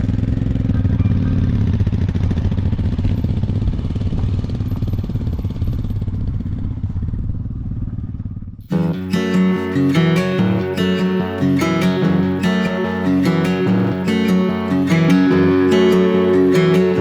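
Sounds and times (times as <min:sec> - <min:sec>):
motorcycle engine running: 0:00.0 - 0:08.6
acoustic guitar music: 0:08.6 - 0:17.0.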